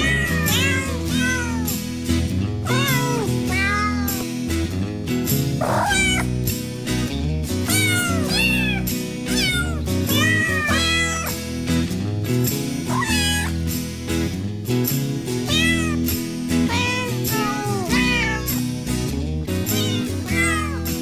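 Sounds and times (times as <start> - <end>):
kittens mewing: 0.0 - 1.9, 2.6 - 4.5, 5.5 - 11.6, 12.8 - 13.7, 15.4 - 18.8, 19.6 - 21.0
background music: 0.0 - 21.0.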